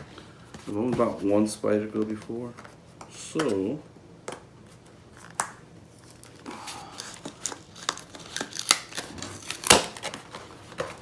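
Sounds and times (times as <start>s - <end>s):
packaging clicks and rustles: 6.1s - 11.0s.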